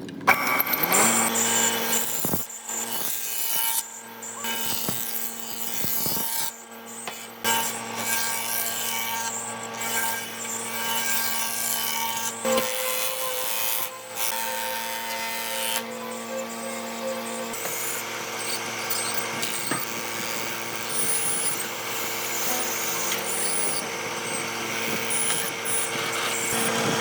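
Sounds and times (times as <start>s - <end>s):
power tool cutting wood: 0.0s - 27.0s.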